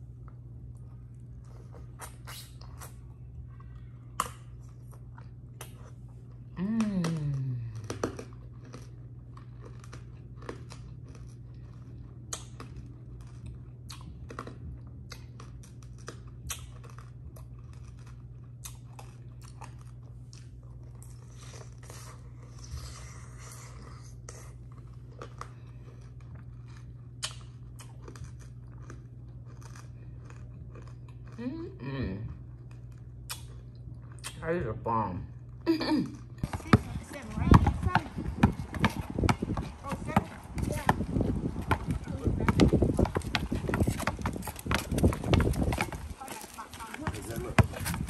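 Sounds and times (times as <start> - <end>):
steady low hum: 0.0 - 48.0
juicy chewing: 0.2 - 34.4.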